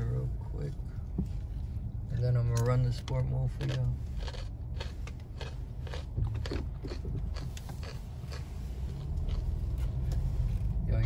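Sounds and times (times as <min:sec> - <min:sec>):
car engine low rumble: 0:00.0 - 0:11.0
interior clicks and creaks: 0:01.0 - 0:10.9.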